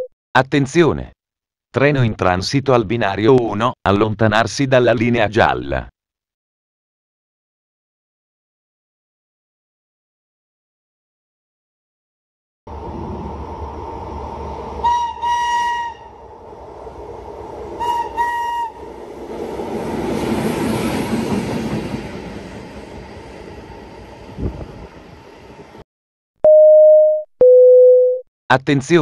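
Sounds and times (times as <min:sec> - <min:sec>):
rush of passing train: 0:12.7 - 0:25.8
train horn: 0:14.8 - 0:16.2, 0:17.8 - 0:18.8.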